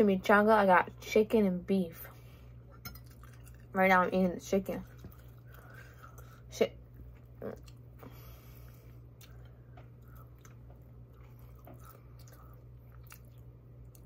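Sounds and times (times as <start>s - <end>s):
low steady hum: 0.0s - 14.0s
person chewing: 2.7s - 3.7s, 4.8s - 14.0s.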